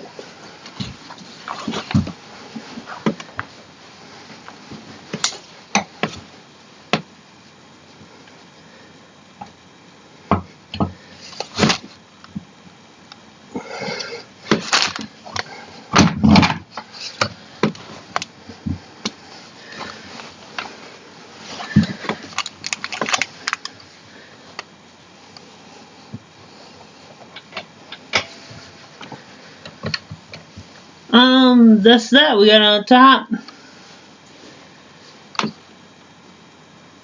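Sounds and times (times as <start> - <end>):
chair parts knocking and scraping: 0.7 - 3.6, 10.3 - 12.5, 14.4 - 20.7, 27.2 - 30.8.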